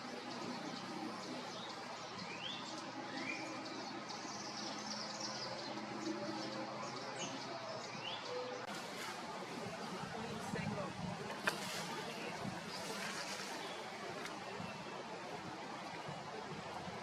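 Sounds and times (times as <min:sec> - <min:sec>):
birds whistling and chirping: 0:00.0 - 0:08.7
steady background noise: 0:00.0 - 0:17.0.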